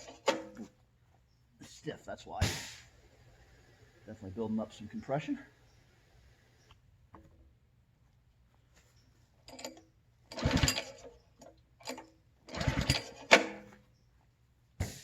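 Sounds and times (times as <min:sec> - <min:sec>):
engine turning over: 0:09.5 - 0:11.2, 0:11.8 - 0:13.6
recoil starter cord pulled: 0:09.5 - 0:13.8.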